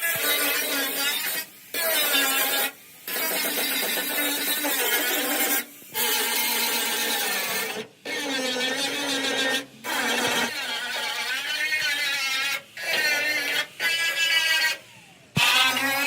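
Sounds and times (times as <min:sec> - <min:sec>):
power tool whining: 0:08.6 - 0:16.0.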